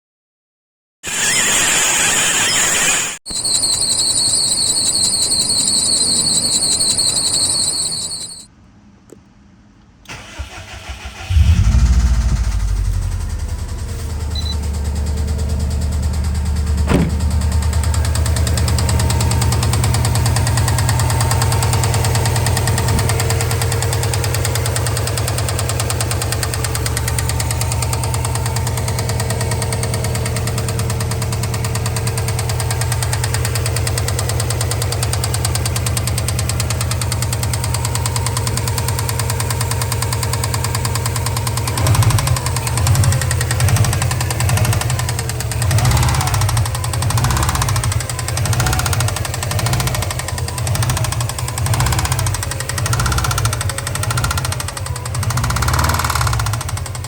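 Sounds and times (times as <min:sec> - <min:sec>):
pulsing high tones: 0:01.0 - 0:08.5, 0:11.3 - 0:15.0
car engine starting and idling: 0:07.6 - 0:57.0.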